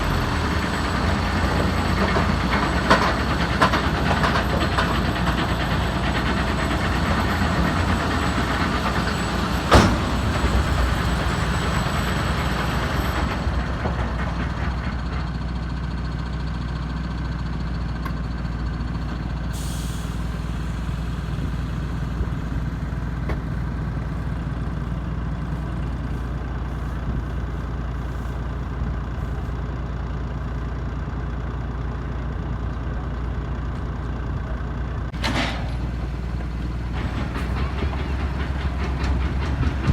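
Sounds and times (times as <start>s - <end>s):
machinery noise: 0.0s - 15.8s, 35.2s - 39.9s
tractor engine running: 0.0s - 39.9s.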